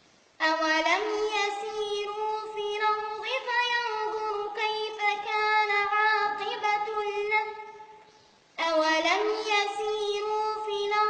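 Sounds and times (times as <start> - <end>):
child reciting melodically: 0.4 - 8.0, 8.6 - 11.0.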